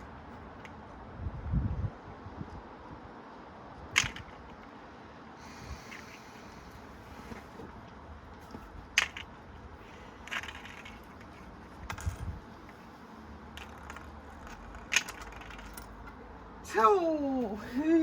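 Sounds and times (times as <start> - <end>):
coins clinking in washing machine: 13.5 - 16.0.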